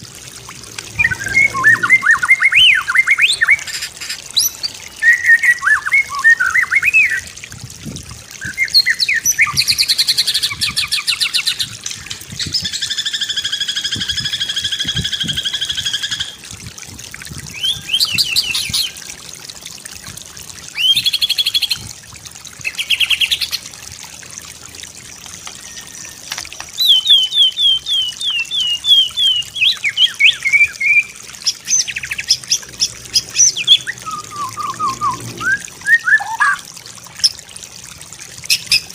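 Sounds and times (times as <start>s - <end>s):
bird singing whistles and trills: 1.0s - 3.8s, 4.4s - 7.2s, 8.4s - 11.7s, 17.5s - 19.0s, 20.7s - 21.8s, 26.8s - 32.4s, 33.2s - 36.6s.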